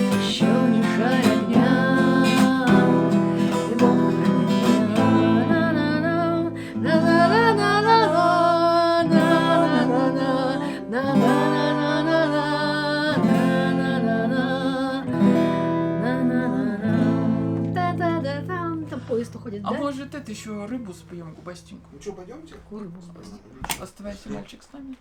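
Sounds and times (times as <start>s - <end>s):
person singing: 0.0s - 19.0s
acoustic guitar strumming chords: 0.0s - 22.0s.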